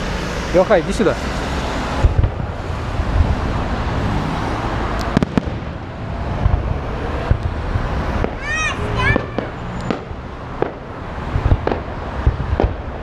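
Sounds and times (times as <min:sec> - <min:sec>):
fireworks shells booming: 0:00.0 - 0:03.4, 0:05.0 - 0:08.5, 0:09.1 - 0:13.0
steady background noise: 0:00.0 - 0:13.0
sharp firework cracks: 0:02.0 - 0:02.6, 0:05.0 - 0:05.8, 0:06.4 - 0:13.0.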